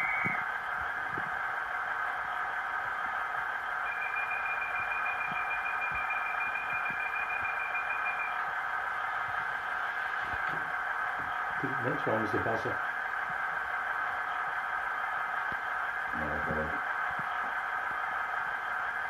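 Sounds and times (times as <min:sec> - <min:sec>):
steady high tone: 0:00.0 - 0:00.5, 0:03.7 - 0:13.1
model train engine sound from speaker: 0:00.0 - 0:19.0.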